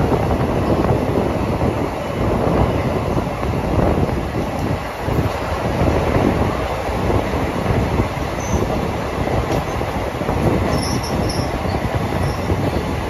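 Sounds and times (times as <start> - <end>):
train wheels rumbling on rails: 0.0 - 13.0
wheel squeals: 8.4 - 8.8, 10.6 - 12.9.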